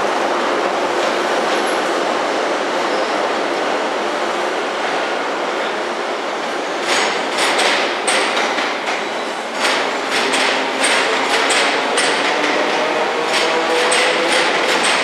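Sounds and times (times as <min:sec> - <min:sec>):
train wheels rumbling: 0:00.0 - 0:15.0
train wheels clacking: 0:06.8 - 0:15.0.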